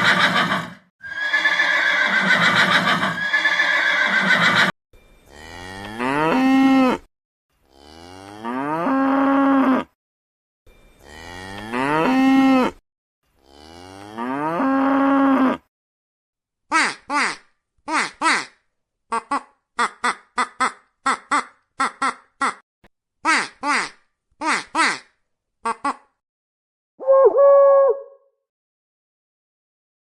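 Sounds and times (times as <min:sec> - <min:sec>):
horse whinnying: 0:00.0 - 0:04.7
cow mooing: 0:05.3 - 0:07.1, 0:07.7 - 0:09.9, 0:11.0 - 0:12.8, 0:13.4 - 0:15.6.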